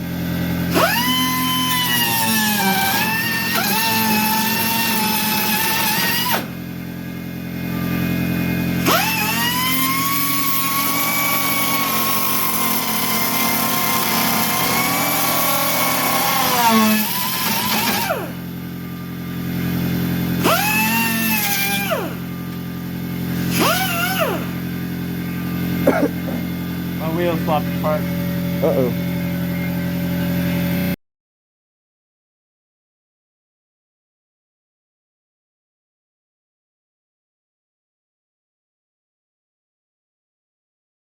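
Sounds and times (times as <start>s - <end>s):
air cutoff wheel cutting metal: 0.7s - 6.5s, 8.7s - 18.4s, 19.8s - 29.5s.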